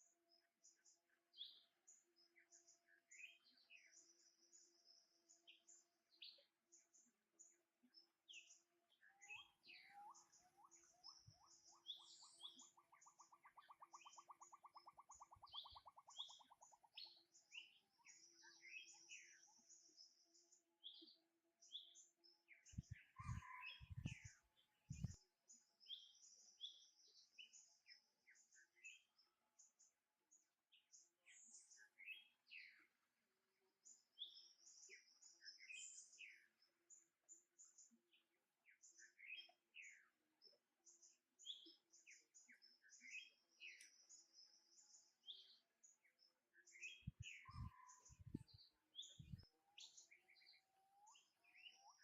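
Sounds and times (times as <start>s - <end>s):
faint bird chirps: 0.0s - 52.0s
bird trill: 9.0s - 19.3s, 23.2s - 24.2s, 46.8s - 48.4s.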